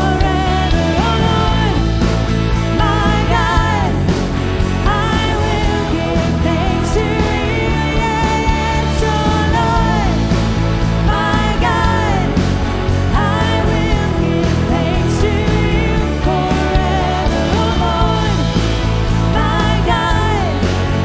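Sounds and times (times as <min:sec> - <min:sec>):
lead vocalist singing: 0:00.0 - 0:21.0
worship band playing: 0:00.0 - 0:21.0.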